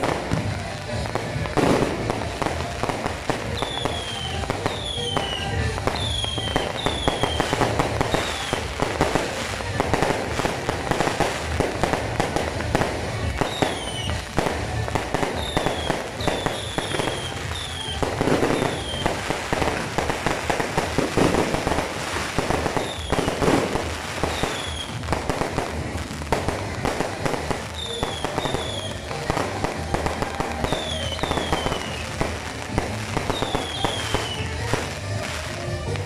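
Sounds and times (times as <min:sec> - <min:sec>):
fireworks crackling and popping: 0:00.0 - 0:36.0
heavy firework bursts: 0:00.0 - 0:36.0.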